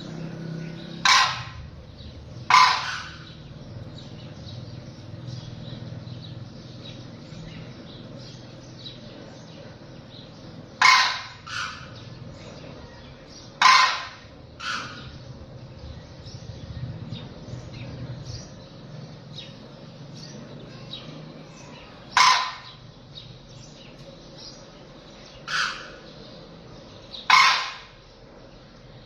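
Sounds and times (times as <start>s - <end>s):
loud short bird calls: 0.0s - 5.6s, 7.2s - 15.3s, 20.2s - 28.2s
faint bird chirping: 0.0s - 29.0s.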